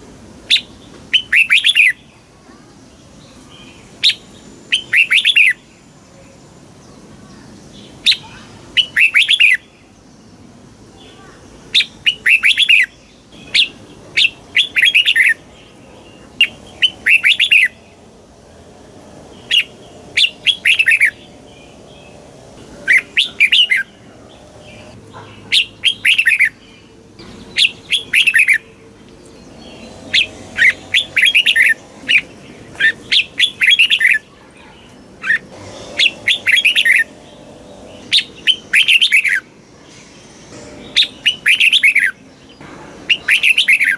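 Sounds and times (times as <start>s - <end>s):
bird singing whistled phrases: 0.5s - 2.0s, 4.0s - 5.6s, 8.1s - 9.6s, 16.4s - 17.8s, 27.6s - 28.6s, 43.1s - 43.9s.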